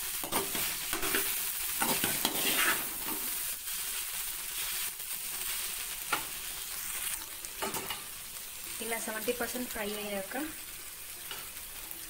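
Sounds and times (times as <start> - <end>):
okra sizzling in a pan: 0.0 - 12.0
spatula scraping a metal pan: 0.2 - 3.4.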